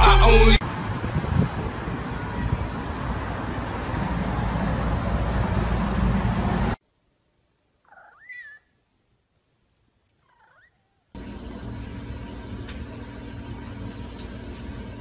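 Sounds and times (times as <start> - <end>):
loud steady noise: 0.0 - 2.7
cat meowing: 10.2 - 11.0.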